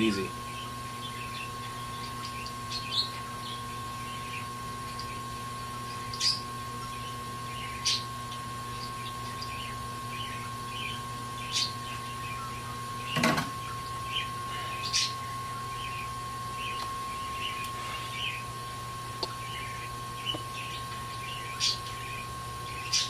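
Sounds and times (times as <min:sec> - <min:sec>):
heating tool hum and whine: 0:00.0 - 0:23.0.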